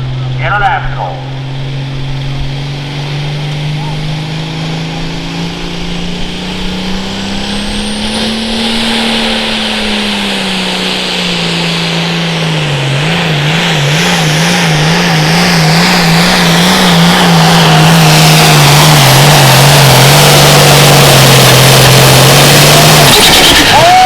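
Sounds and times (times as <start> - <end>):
tractor engine droning: 0.0 - 24.0.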